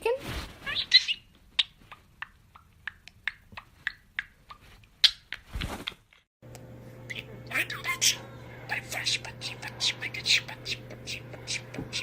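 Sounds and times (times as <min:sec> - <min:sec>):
parrot clicking and chirping: 0:00.9 - 0:05.5.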